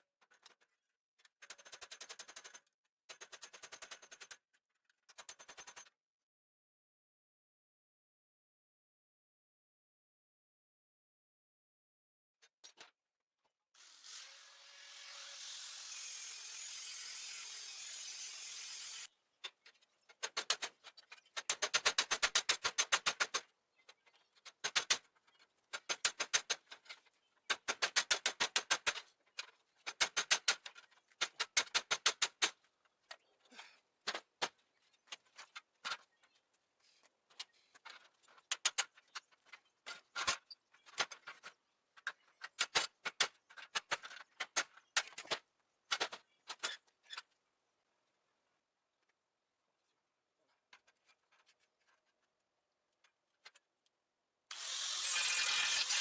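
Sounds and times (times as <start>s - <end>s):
power tool hissing: 13.8s - 19.1s, 54.5s - 56.0s.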